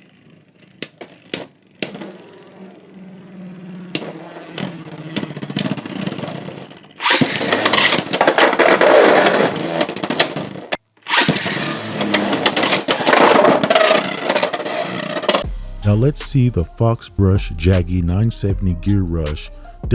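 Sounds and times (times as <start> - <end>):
spinning tops grinding and clashing: 0.0 - 15.5.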